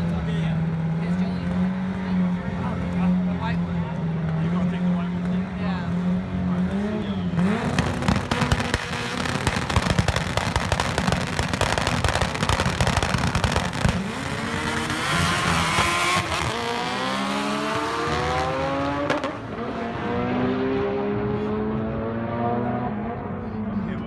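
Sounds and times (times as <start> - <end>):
race car engines accelerating: 0.0 - 24.0
engine crackling and popping: 7.4 - 19.4.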